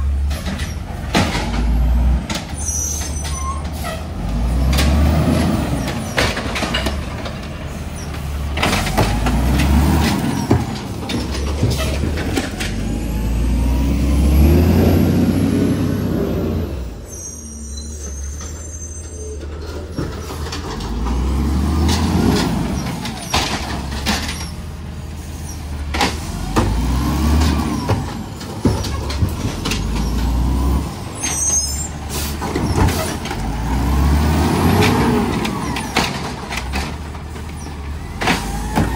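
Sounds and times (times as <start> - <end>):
diesel truck engine revving: 0.0 - 17.2, 19.6 - 38.9
knocks and clanks: 0.2 - 4.0, 4.6 - 13.1, 19.4 - 24.6, 25.9 - 30.4, 32.2 - 33.7, 34.6 - 38.9.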